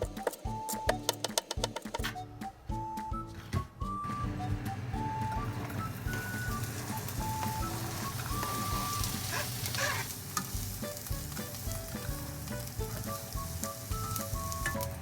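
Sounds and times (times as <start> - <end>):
light background music: 0.0 - 15.0
food sizzling in a pan: 6.2 - 15.0.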